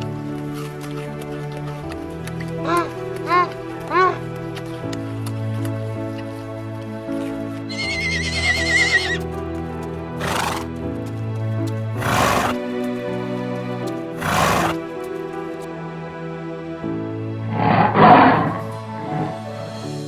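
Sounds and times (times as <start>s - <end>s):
background music: 0.0s - 20.0s
horse whinnying: 7.7s - 9.4s, 10.2s - 10.8s, 11.9s - 12.6s, 14.2s - 15.0s
horse breathy bursts: 7.7s - 15.6s.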